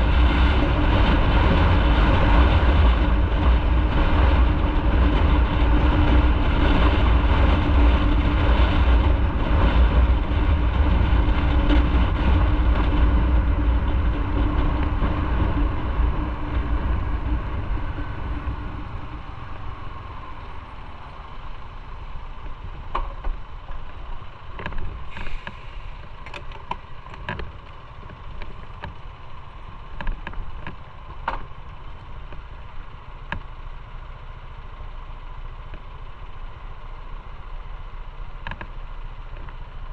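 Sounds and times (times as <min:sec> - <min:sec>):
motorcycle engine: 0:00.0 - 0:39.9
rushing air: 0:24.9 - 0:26.2.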